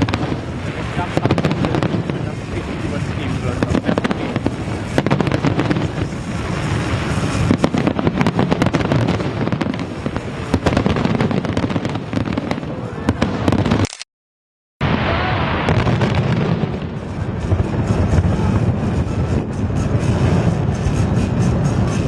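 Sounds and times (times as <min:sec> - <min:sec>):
fireworks bangs and crackling: 0:00.0 - 0:13.9, 0:14.8 - 0:22.0
rumbling background: 0:16.6 - 0:22.0.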